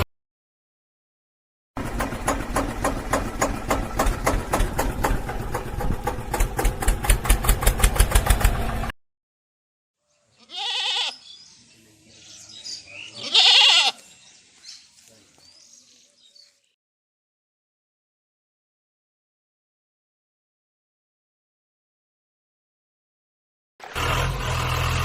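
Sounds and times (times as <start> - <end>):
engine chugging: 1.8 - 8.9, 23.8 - 25.0
goat bleating: 10.4 - 11.4, 13.1 - 14.1.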